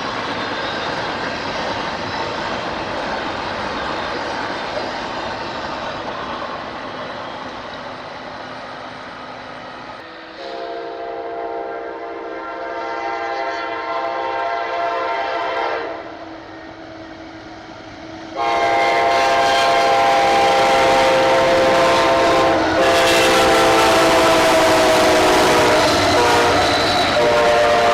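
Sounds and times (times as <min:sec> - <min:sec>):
train rumbling: 0:00.0 - 0:27.9
locomotive air horn blasts: 0:10.0 - 0:16.2, 0:18.4 - 0:27.9.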